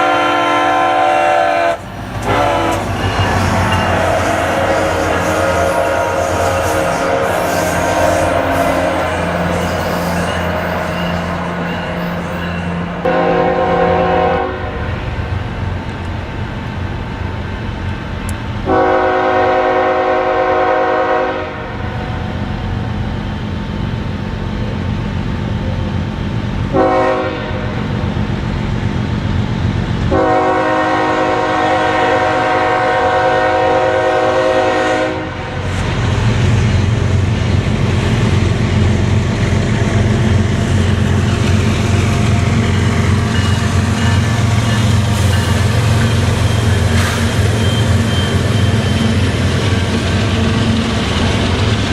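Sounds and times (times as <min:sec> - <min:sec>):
locomotive air horn: 0:00.0 - 0:12.1, 0:13.0 - 0:14.8, 0:18.7 - 0:21.8, 0:26.7 - 0:27.8, 0:30.1 - 0:35.6
low train engine rumble: 0:00.0 - 0:51.9.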